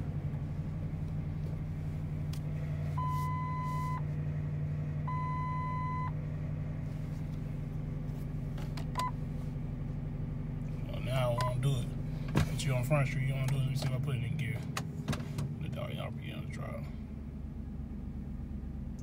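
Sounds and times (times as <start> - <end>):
rough engine idle: 0.0 - 19.0
one-second beeps: 3.0 - 4.0.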